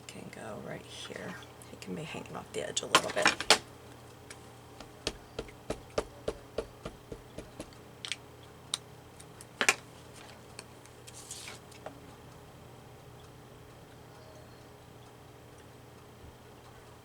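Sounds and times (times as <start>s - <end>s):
soft paper rustle: 9.5s - 12.0s.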